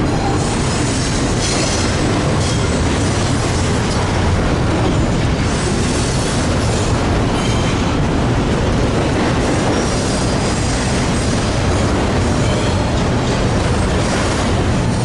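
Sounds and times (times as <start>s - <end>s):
freight train rumbling: 0.0s - 15.0s
faint train wheel squeal: 5.5s - 7.9s, 9.7s - 13.0s.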